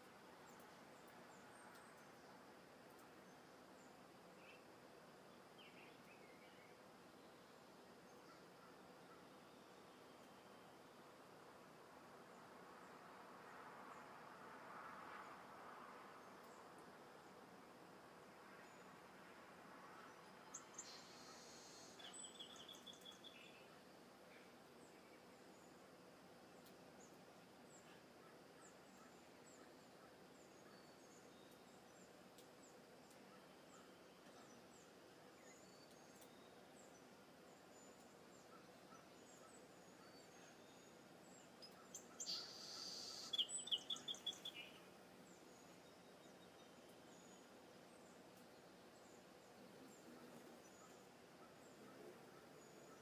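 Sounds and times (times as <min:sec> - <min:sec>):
faint bird chirps: 0:19.9 - 0:25.9, 0:26.5 - 0:53.0.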